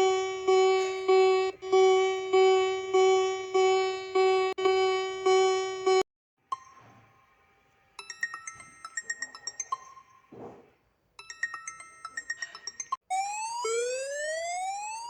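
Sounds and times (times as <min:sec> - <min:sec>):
pulsing siren tone: 0:00.0 - 0:06.0, 0:13.1 - 0:15.0.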